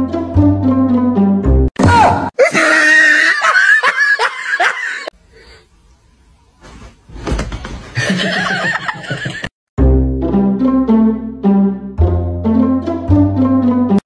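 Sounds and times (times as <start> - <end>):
laughter in quick bursts: 3.4 - 5.1, 8.0 - 9.5.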